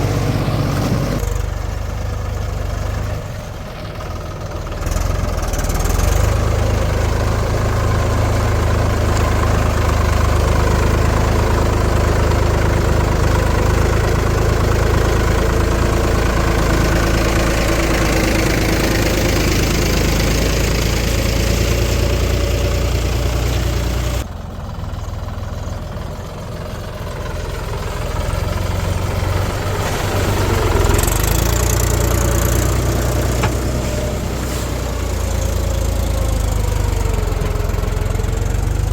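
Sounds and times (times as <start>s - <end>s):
diesel machinery engine drone: 0.0s - 38.9s.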